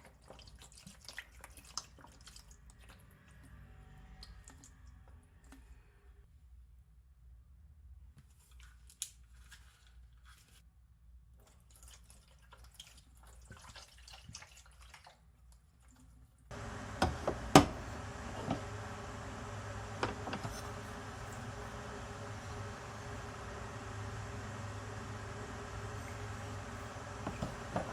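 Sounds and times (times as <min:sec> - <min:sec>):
faint clicks and drips: 0:00.0 - 0:05.9, 0:11.4 - 0:16.5
steady hiss: 0:16.5 - 0:27.9.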